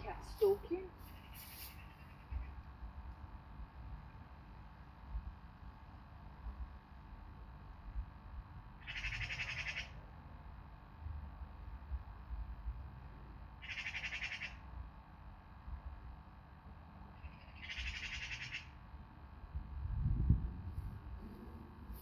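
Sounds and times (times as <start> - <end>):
low background rumble: 0.0 - 22.0
bird rattling call: 13.6 - 14.5, 17.3 - 18.7.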